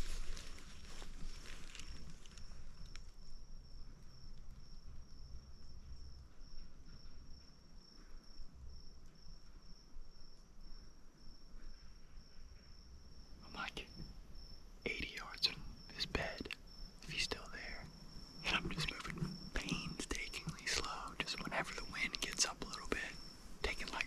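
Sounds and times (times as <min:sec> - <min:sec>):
footsteps in leaf litter: 0:00.0 - 0:02.4
insect chirping: 0:00.0 - 0:24.0.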